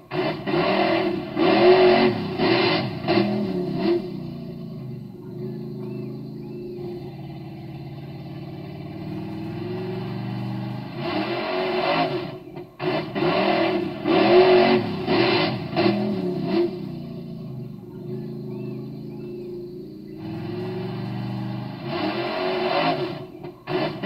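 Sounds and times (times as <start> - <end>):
engine idling and revving: 0.0 - 24.0.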